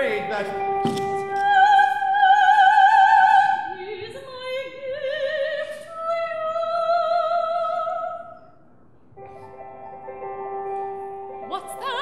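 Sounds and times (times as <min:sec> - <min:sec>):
operatic woman singing: 0:01.1 - 0:08.4, 0:11.4 - 0:12.0.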